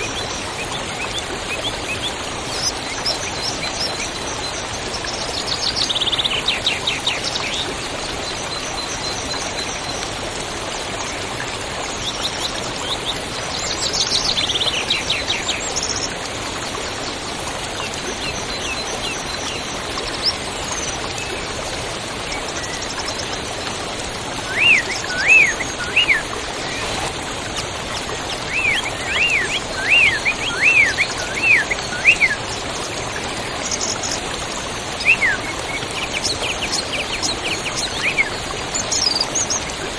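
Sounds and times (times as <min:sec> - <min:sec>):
river rushing: 0:09.3 - 0:39.9
swooping whistled bird notes: 0:24.5 - 0:27.1, 0:28.5 - 0:32.4.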